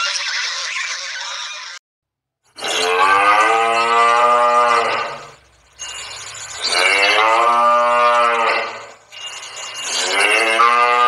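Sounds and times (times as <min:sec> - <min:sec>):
cow mooing: 0:02.6 - 0:05.4, 0:06.6 - 0:09.0, 0:09.9 - 0:11.0.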